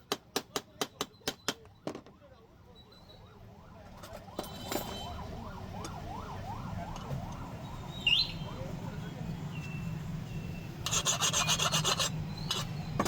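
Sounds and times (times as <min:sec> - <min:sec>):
electronic siren yelping: 0:02.6 - 0:08.8.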